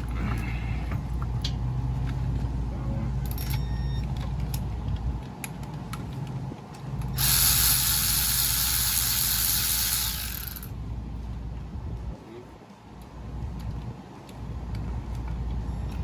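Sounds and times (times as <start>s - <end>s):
steady low hum: 0.0s - 16.0s
hand ratchet clicking: 7.1s - 10.7s
loud steady hiss: 7.2s - 10.7s.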